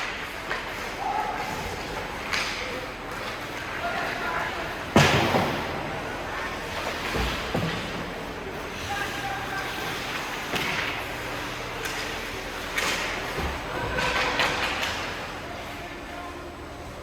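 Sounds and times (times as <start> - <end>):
hockey play knocking against boards: 0.0 - 8.4, 9.1 - 15.4
arena noise: 0.0 - 17.0
distant voices: 0.0 - 17.0.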